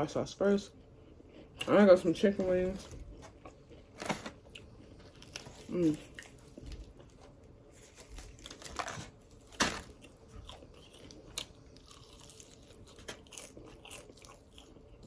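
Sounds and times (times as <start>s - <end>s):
chewing: 2.9s - 8.6s, 9.9s - 15.0s
crunching fried chicken: 3.3s - 15.0s.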